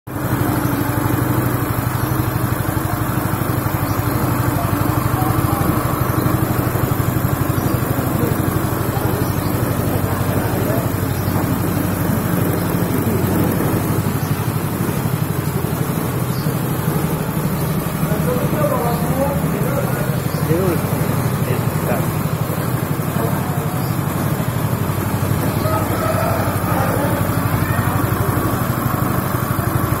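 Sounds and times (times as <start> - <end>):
hulling machine pulsing hum: 0.1 - 30.0.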